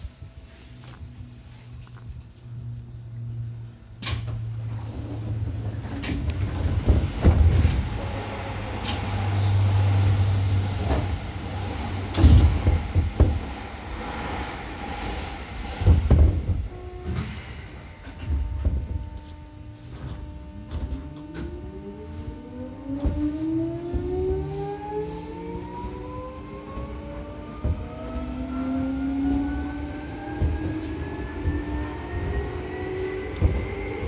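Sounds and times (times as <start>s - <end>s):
train passing at speed: 0.0s - 34.0s
wheels clunking over rail joints: 4.0s - 19.2s, 26.8s - 34.0s.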